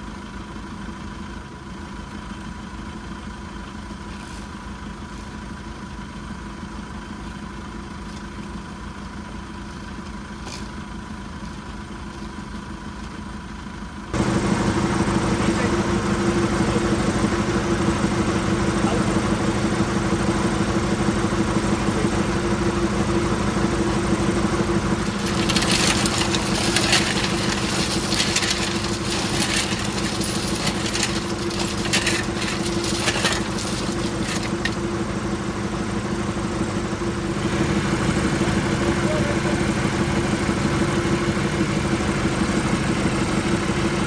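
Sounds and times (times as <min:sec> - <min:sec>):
engine running: 0:00.0 - 0:44.0
scraping and rattling: 0:23.6 - 0:35.1.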